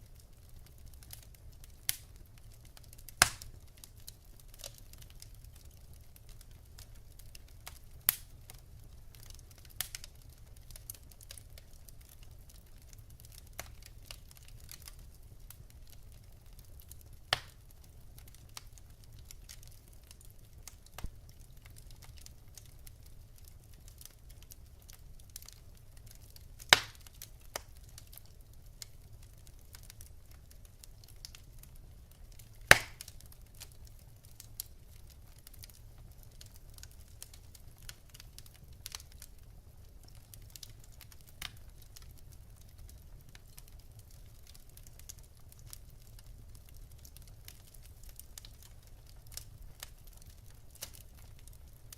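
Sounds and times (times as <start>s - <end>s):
wood fire crackling: 0.0s - 51.9s
loud fire pops: 3.0s - 5.8s, 16.8s - 17.6s, 26.6s - 28.2s, 32.6s - 34.7s.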